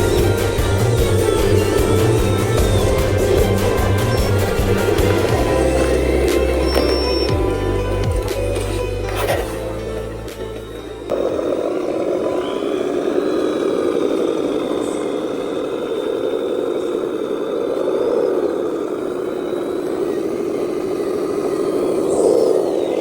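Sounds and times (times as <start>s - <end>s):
toy truck motor whining: 0.0s - 16.3s.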